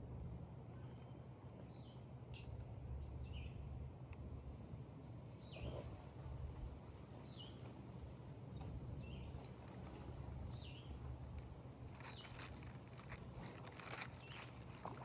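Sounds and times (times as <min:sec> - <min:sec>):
low background rumble: 0:08.8 - 0:15.0.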